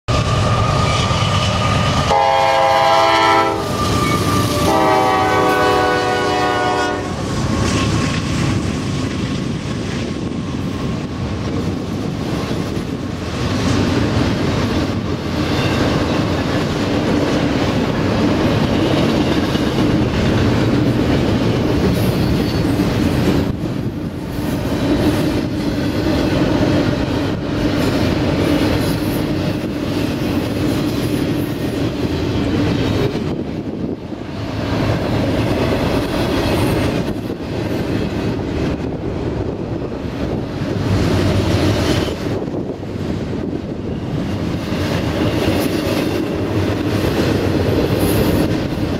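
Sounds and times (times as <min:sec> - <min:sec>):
train cars rumbling and clacking: 0:00.1 - 0:48.9
locomotive air horn blasts: 0:02.0 - 0:07.2.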